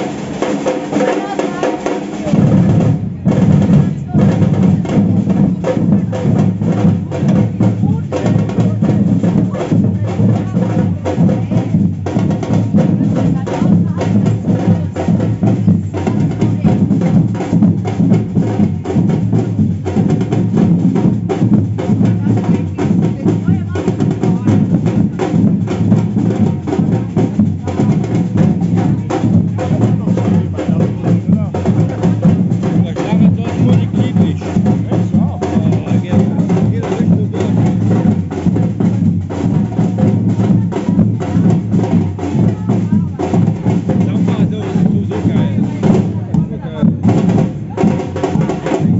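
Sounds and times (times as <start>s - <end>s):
samba percussion band drumming: 0.0s - 48.9s.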